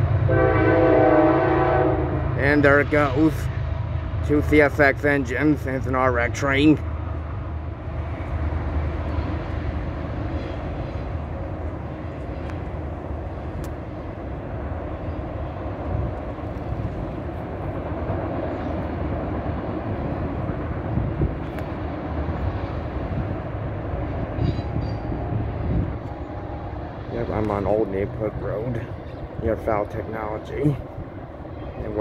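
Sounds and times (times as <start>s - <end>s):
train wheels rumbling on rails: 0.0s - 32.0s
faint clicks: 12.2s - 12.7s.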